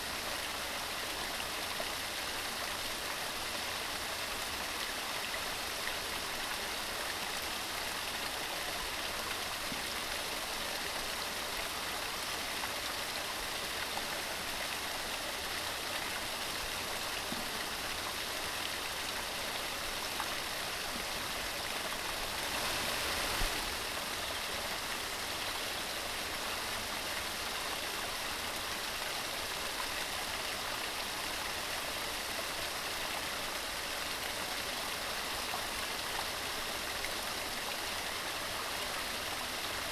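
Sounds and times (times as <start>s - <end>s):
stream rushing over stones: 16.7s - 25.4s.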